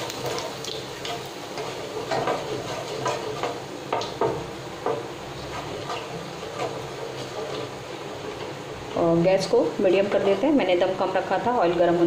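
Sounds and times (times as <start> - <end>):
spatula scraping and knocking pan: 0.0 - 8.6
seeds sizzling in hot oil: 0.0 - 12.0.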